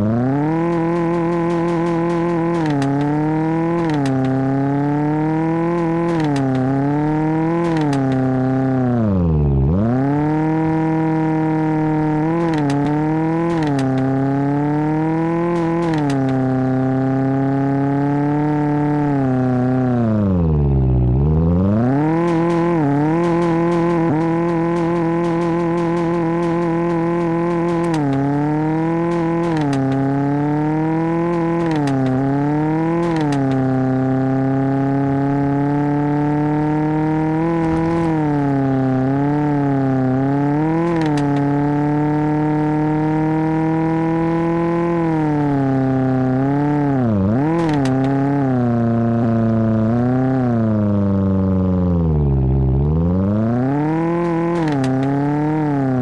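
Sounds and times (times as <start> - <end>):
car engine revving: 0.0 - 56.0
clicks: 0.4 - 8.7, 12.1 - 16.7, 21.8 - 34.3, 36.4 - 42.2, 43.7 - 49.7, 53.6 - 56.0.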